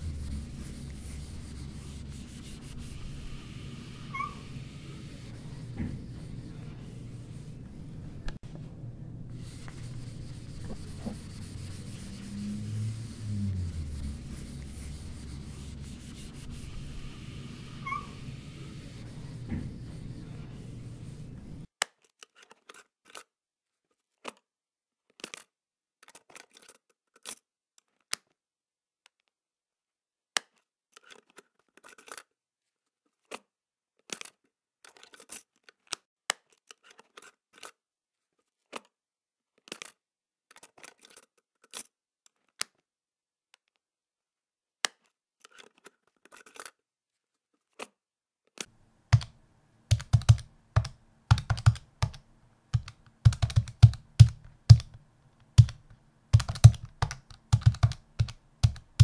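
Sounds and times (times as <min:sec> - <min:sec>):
steady noise: 0:00.0 - 0:21.6.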